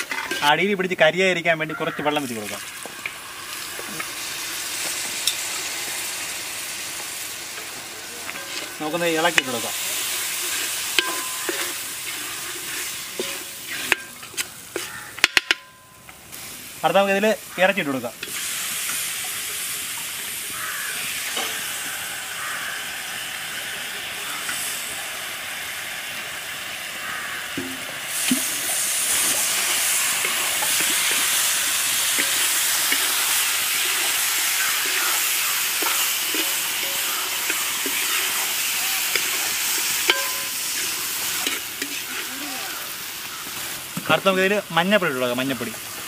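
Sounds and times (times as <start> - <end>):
chicken sizzling in a pan: 0.0 - 46.0.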